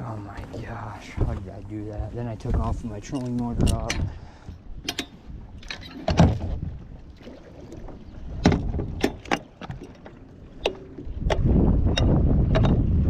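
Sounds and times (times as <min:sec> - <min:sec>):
gear knocking on a boat: 0:07.8 - 0:13.0.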